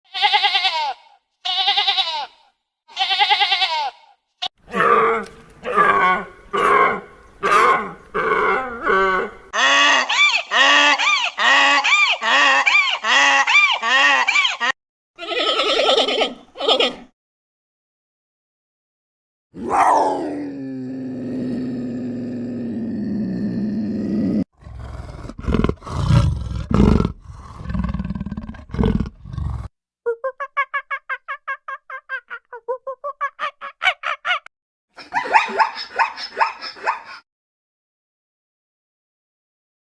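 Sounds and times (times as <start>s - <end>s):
animal roaring and growling: 4.7s - 9.6s, 19.6s - 29.7s
low drawn-out animal call: 4.7s - 14.7s.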